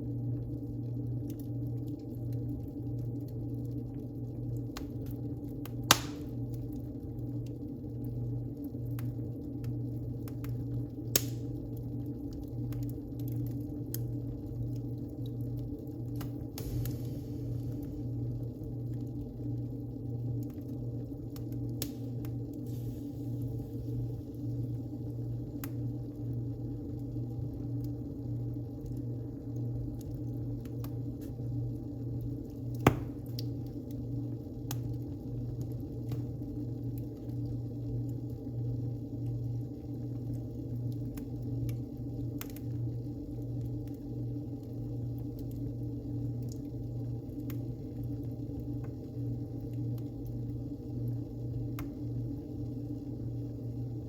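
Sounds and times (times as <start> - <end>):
low fire rumble: 0.0 - 54.0
wood fire crackling: 0.0 - 54.0
loud fire pop: 5.9 - 6.3, 16.6 - 17.6, 32.8 - 33.5
sharp loud pop of fire: 5.9 - 6.3, 32.8 - 33.3.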